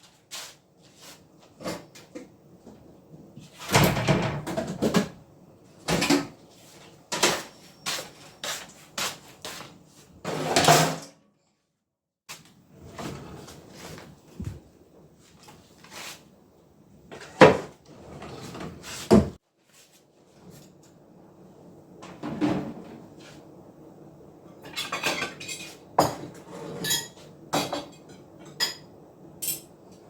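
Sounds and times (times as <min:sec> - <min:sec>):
cupboard doors and drawers clattering: 0:03.6 - 0:05.2, 0:17.1 - 0:19.4.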